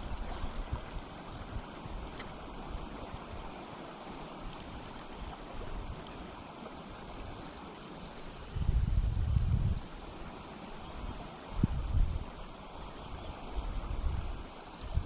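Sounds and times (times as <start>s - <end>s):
river water rushing: 0.0s - 8.7s, 9.8s - 15.0s.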